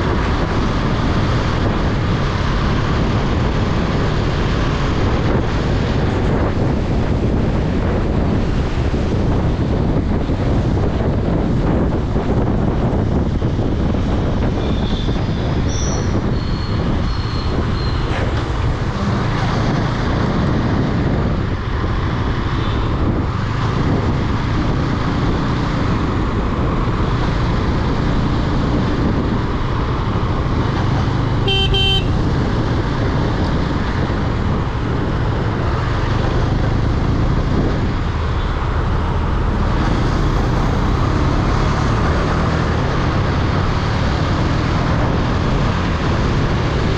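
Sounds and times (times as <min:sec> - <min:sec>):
wind rumble on microphone: 0:00.0 - 0:46.9
motorcycle engine: 0:27.1 - 0:45.0
vehicle horns honking: 0:31.4 - 0:32.3.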